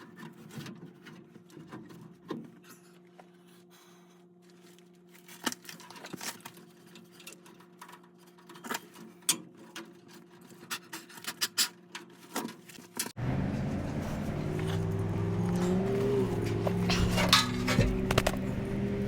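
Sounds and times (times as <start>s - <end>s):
tools and metal parts clicking: 14.5s - 18.5s.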